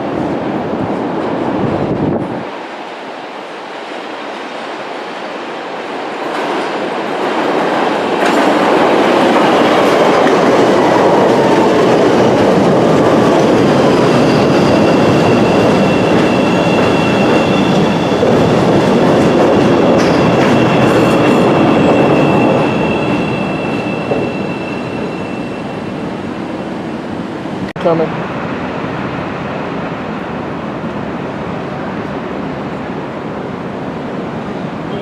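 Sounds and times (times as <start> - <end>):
train wheels clattering on rails: 6.2 - 25.9.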